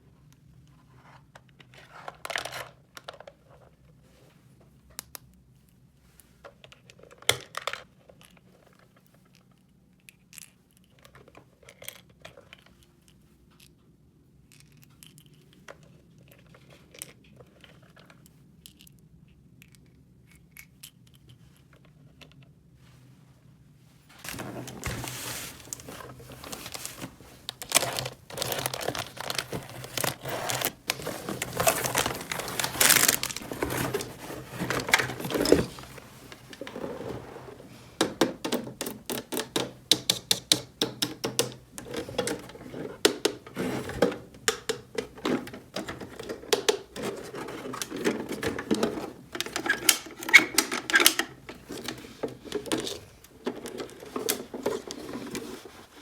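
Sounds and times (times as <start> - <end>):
rustling and crinkling: 20.3 - 56.0.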